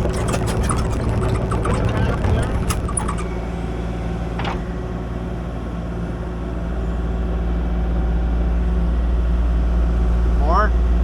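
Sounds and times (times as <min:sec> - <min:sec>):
short high squeak: 0:00.0 - 0:03.6
diesel engine running: 0:00.0 - 0:10.6.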